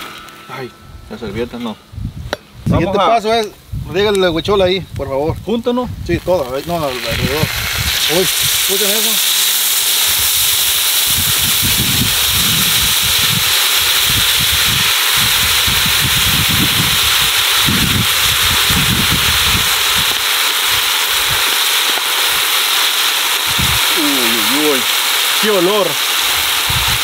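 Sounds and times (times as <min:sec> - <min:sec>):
low rumble: 0:00.0 - 0:02.9
loud frying hiss: 0:00.0 - 0:27.0.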